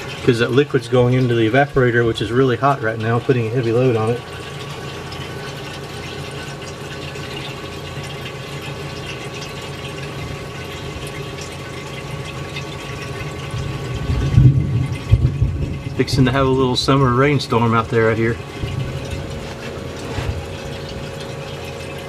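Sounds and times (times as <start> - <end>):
liquid refrigerant rushing: 0.0 - 22.0
refrigerator compressor humming: 0.0 - 22.0
low rumble: 13.6 - 17.2.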